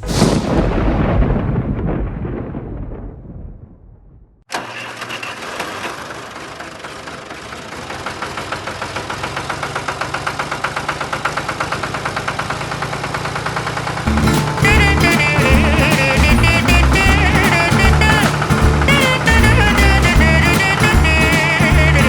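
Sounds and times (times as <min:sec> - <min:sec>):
motorbike engine running: 0:06.1 - 0:22.0
music: 0:14.1 - 0:22.0.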